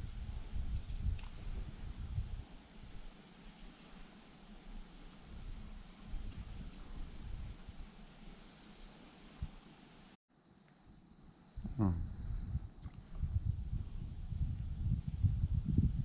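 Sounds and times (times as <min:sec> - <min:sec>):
small bird chirping: 0:00.7 - 0:02.7, 0:03.4 - 0:04.5, 0:05.3 - 0:07.7, 0:08.4 - 0:09.9.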